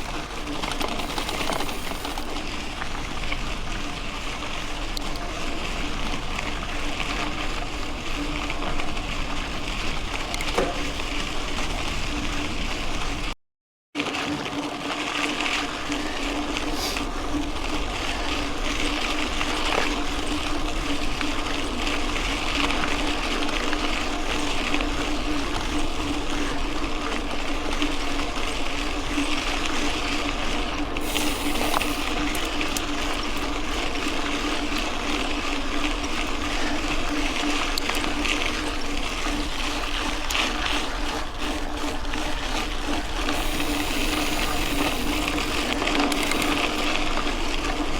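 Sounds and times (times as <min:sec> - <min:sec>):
small rattles: 0:00.0 - 0:02.4
bike tyres on gravel: 0:00.0 - 0:13.2, 0:14.2 - 0:47.9
constant hum: 0:15.5 - 0:47.9.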